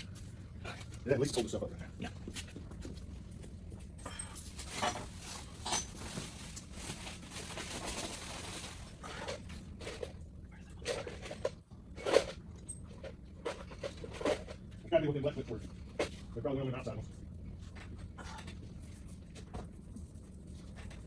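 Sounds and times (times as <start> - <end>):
rustling: 4.4 - 9.2.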